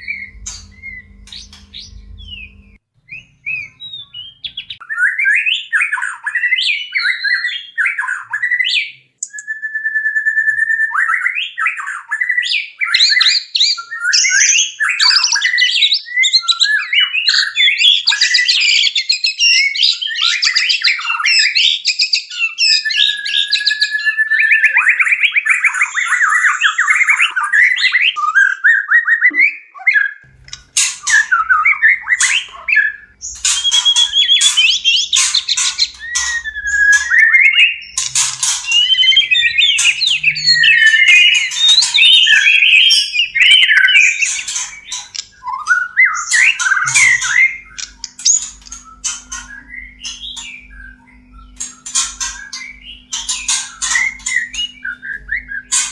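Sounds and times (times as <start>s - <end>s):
sharp chattering bird notes: 0.0s - 4.8s, 30.3s - 55.9s
songbird whistling and trilling: 0.0s - 55.9s.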